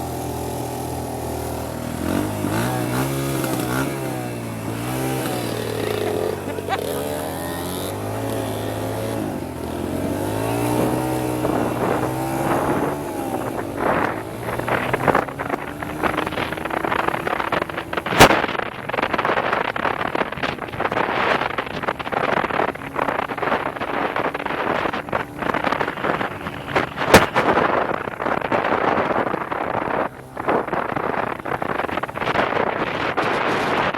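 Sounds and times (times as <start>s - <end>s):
dirt bike engine revving: 0.0s - 18.5s
wind buffeting microphone: 0.0s - 33.9s.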